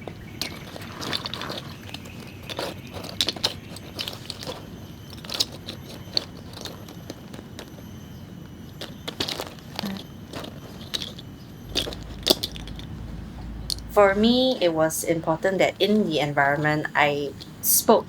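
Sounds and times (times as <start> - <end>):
forest-floor litter crackling: 0.0 - 14.5.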